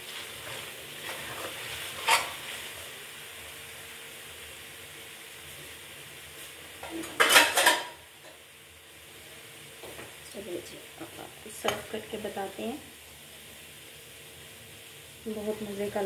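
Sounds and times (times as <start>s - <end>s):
food sizzling in a wok: 0.0s - 16.0s
fork scraping: 0.4s - 2.5s.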